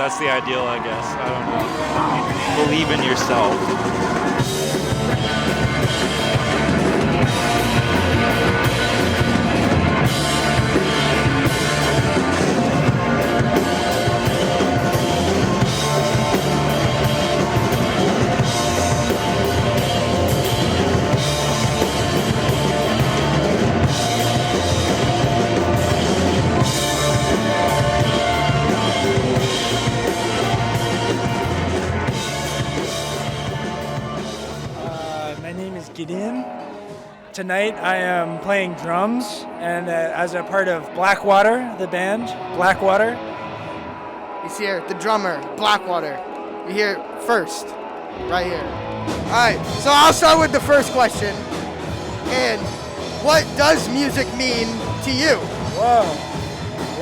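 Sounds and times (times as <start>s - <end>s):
rock music: 0.0s - 57.0s
drum kit beat: 2.2s - 35.2s, 49.1s - 57.0s.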